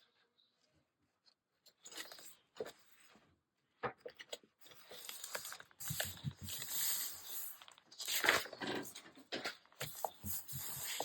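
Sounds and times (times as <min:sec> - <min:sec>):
paper rustling and crinkling: 0:04.2 - 0:11.0.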